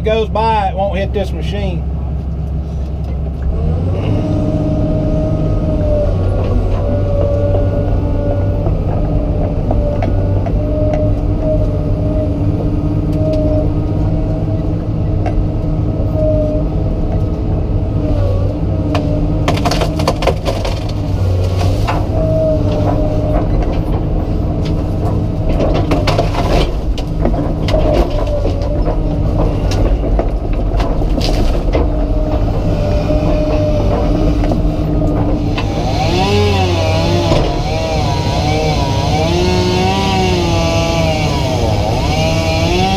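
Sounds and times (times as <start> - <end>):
excavator diesel engine running: 0.0 - 42.9
sharp cracks and knocks of trees: 18.9 - 42.9
chainsaw revving: 35.4 - 42.9.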